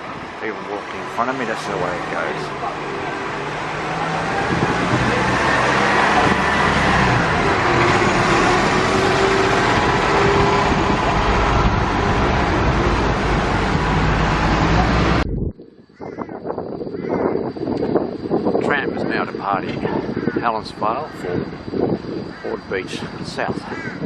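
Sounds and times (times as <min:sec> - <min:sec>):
traffic noise: 0:00.0 - 0:15.3, 0:17.4 - 0:24.0
bus diesel engine pulling away: 0:01.4 - 0:15.2.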